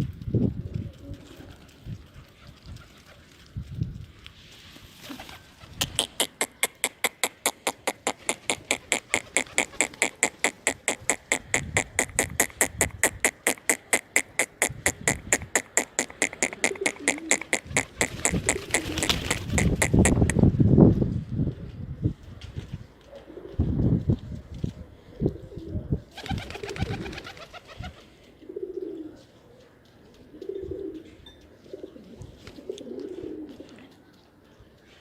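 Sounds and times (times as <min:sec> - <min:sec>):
rapid clicking: 0:05.8 - 0:20.4.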